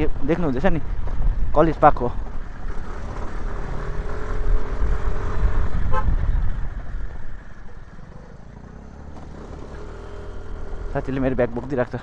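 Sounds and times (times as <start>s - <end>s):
scooter road rumble: 0.0s - 12.0s
horn toot: 5.8s - 6.2s.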